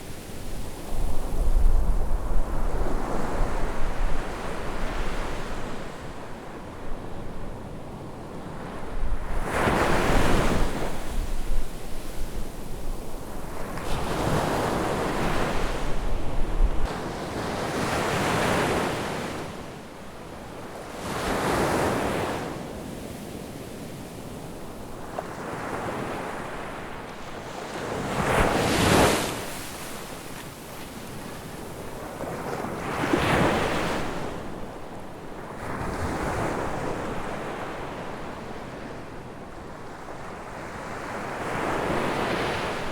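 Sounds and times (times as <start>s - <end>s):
wind rumbling on microphone: 0.0s - 5.9s, 8.8s - 17.0s
ocean waves breaking on a beach: 0.0s - 42.9s.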